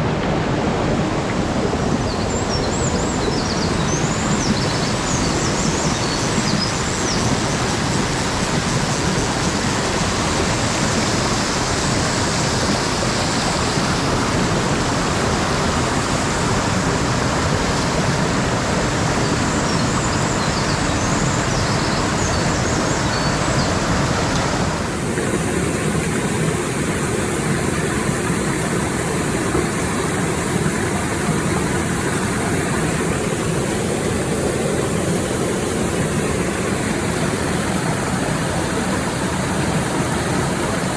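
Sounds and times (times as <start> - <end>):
stream water rushing over rocks: 0.0 - 40.9.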